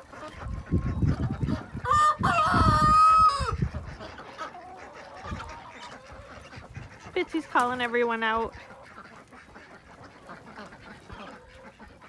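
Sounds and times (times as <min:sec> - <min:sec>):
rooster crowing: 0:01.8 - 0:03.6.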